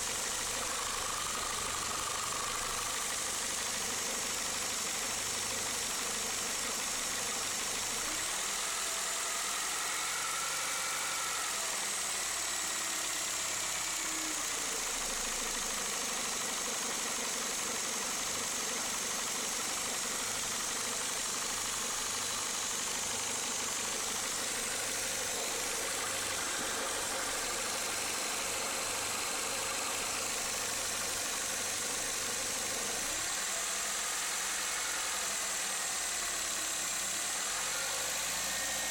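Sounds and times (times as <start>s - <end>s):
car engine idling: 0.0s - 8.4s, 12.2s - 34.6s.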